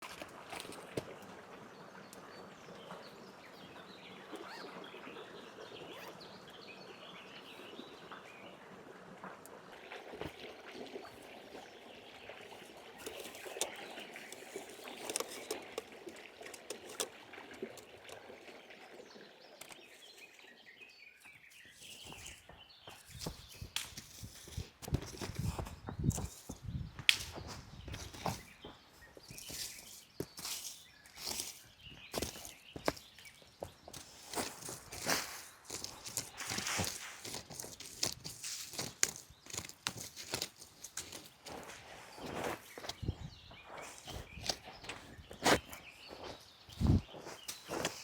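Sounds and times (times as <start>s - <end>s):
chirps: 2.1s - 8.2s, 19.2s - 38.1s, 41.0s - 48.0s
sharp clicks and rustles: 13.0s - 18.2s, 33.9s - 43.1s.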